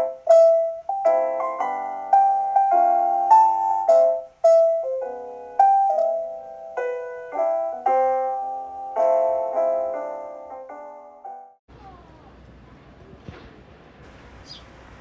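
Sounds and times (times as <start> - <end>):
gentle solo piano: 0.0 - 11.6.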